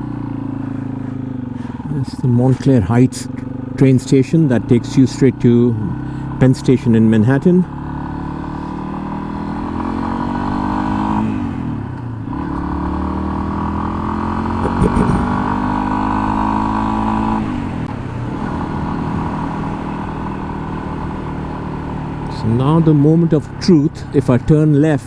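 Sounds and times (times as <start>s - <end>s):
motorcycle engine revving: 0.0s - 4.0s, 7.6s - 22.8s.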